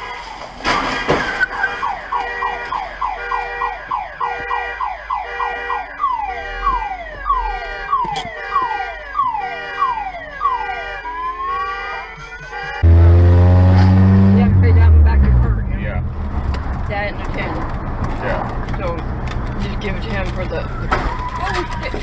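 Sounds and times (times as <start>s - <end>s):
car alarm sweeping tones: 1.2s - 15.4s.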